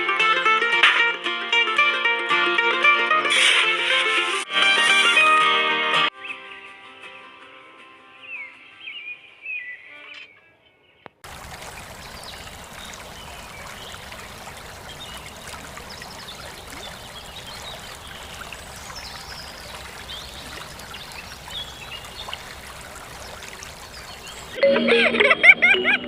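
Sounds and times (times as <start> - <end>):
water running and trickling: 11.2 - 24.6.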